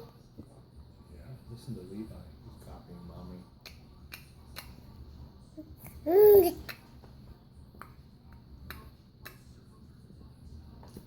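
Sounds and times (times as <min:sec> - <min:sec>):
baby vocalizing ooh: 0:06.1 - 0:06.7.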